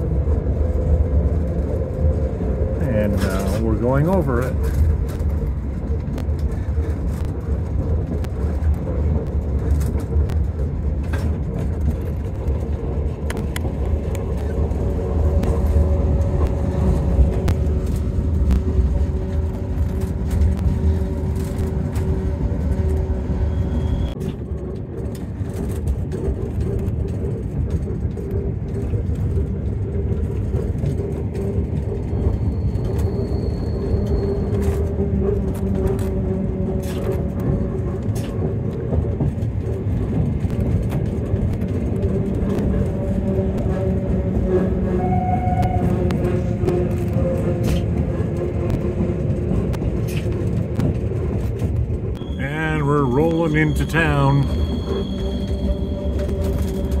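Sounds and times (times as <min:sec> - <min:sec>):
deep rumble of train wheels: 0:00.0 - 0:57.0.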